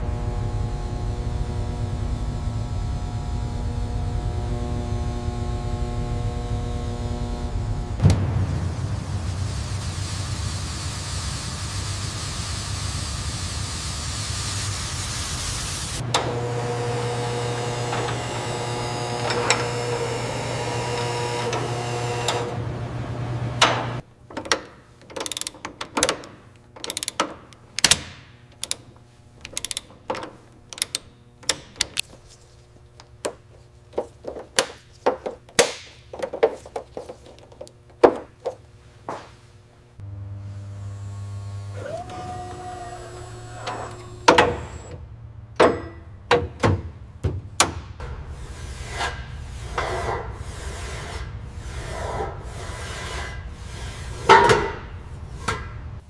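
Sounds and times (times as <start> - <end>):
machine rushing noise: 5.8 - 13.4.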